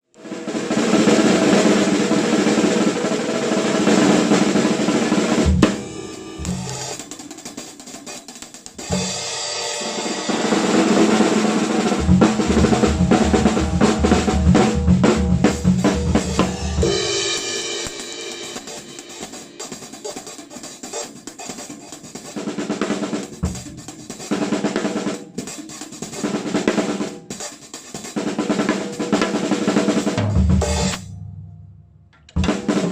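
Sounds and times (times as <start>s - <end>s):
drums with cymbals: 0.2s - 31.4s, 32.3s - 32.9s
pitched sounds: 5.3s - 9.1s.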